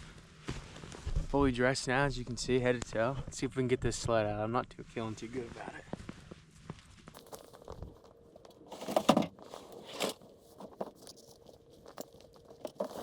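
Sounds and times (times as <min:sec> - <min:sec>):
sled scraping and crunching: 0:07.2 - 0:13.0.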